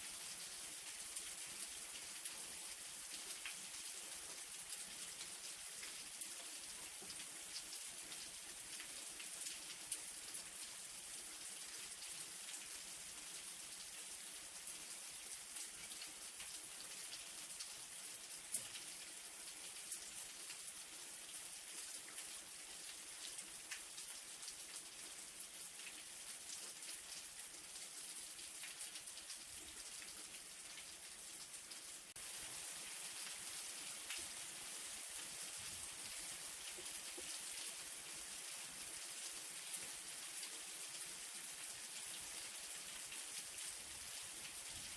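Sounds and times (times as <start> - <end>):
light rain pattering: 0.0 - 44.9.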